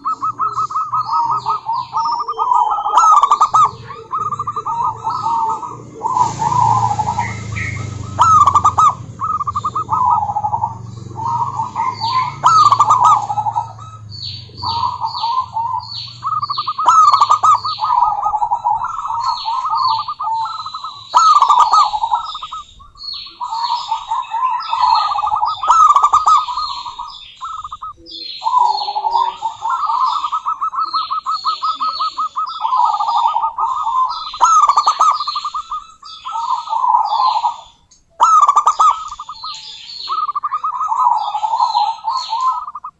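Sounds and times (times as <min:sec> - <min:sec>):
doves cooing: 0:00.0 - 0:42.9
high downward chirps: 0:00.0 - 0:42.9
low hum: 0:03.4 - 0:21.0.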